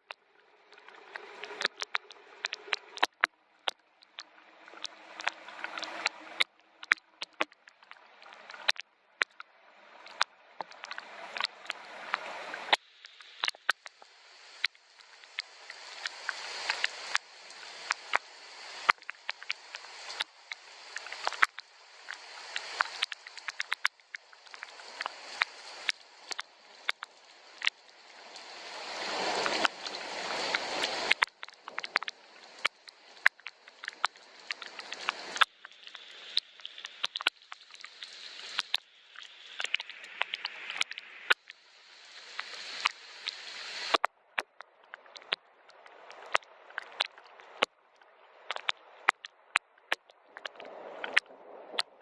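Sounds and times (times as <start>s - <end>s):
rain hiss: 0.0s - 3.2s, 3.9s - 7.0s, 9.6s - 44.0s
rain drops ticking: 0.0s - 52.0s.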